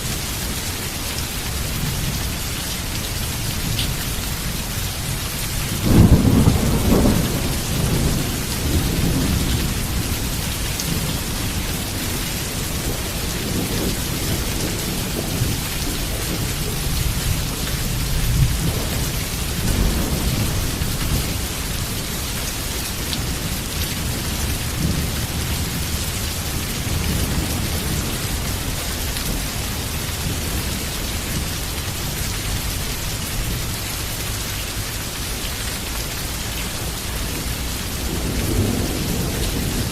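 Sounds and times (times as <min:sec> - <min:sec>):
heavy rain falling: 0:00.0 - 0:39.9
thunder rumbling: 0:05.6 - 0:32.2, 0:36.8 - 0:39.9.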